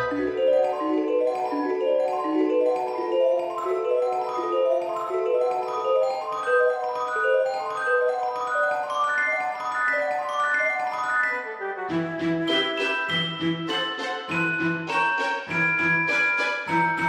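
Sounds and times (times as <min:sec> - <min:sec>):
bouncing mallet percussion melody: 0:00.0 - 0:17.0.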